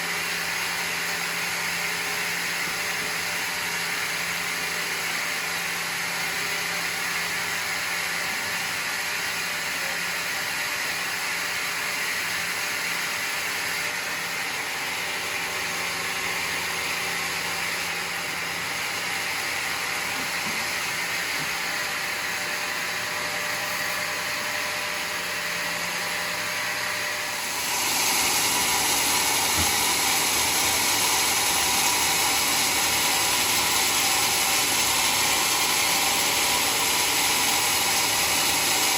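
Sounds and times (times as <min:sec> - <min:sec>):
sawmill sawing a log: 0:00.0 - 0:38.9.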